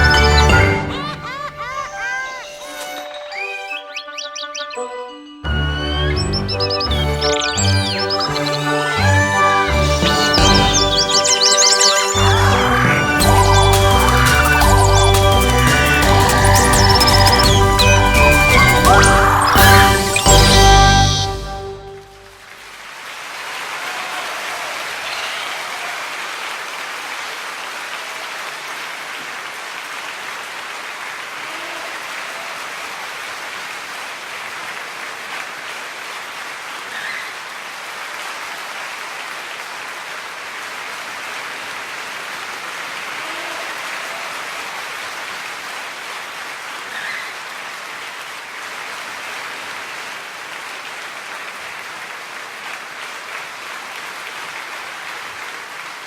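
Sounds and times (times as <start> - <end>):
large flock of birds chattering: 3.3 - 4.8, 6.0 - 9.1, 9.7 - 21.4.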